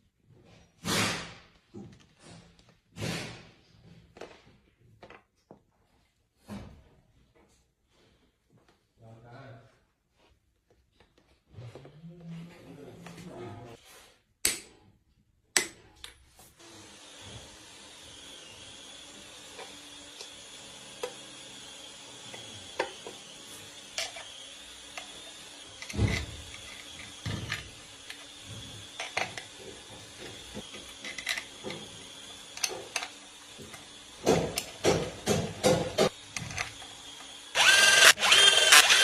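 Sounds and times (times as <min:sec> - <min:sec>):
hand tools clicking and knocking: 0:24.9 - 0:36.9.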